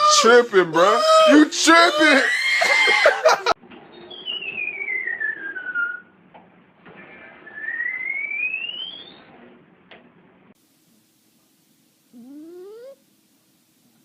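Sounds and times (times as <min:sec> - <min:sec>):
sliding whistles: 0:03.9 - 0:06.2, 0:07.0 - 0:09.4.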